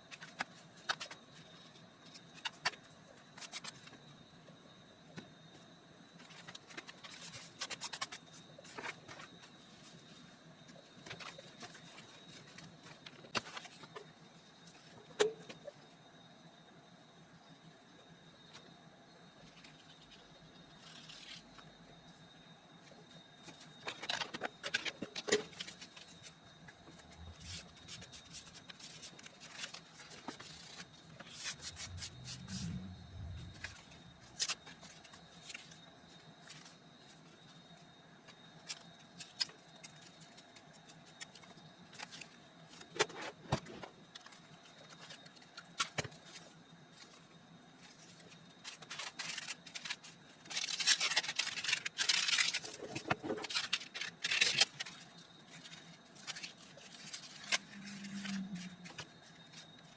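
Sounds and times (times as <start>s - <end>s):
faint steady high tone: 3.8s - 38.7s, 56.4s - 59.9s
paper rustling and rubbing: 27.0s - 35.7s.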